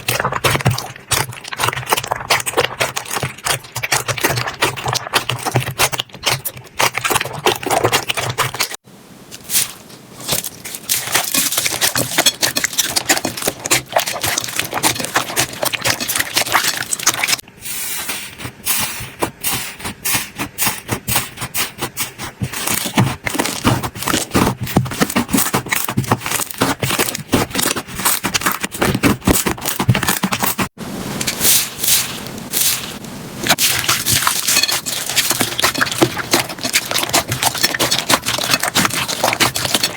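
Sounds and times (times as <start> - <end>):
slime crackling and popping: 22.6 - 39.9.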